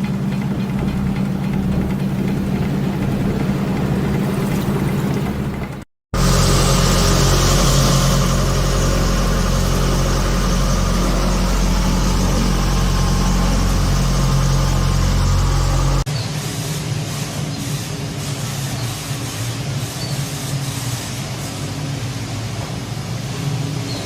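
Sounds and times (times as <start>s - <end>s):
engine drone: 0.0s - 16.1s
low held tones: 0.0s - 16.1s
wind and water hiss: 0.0s - 24.0s.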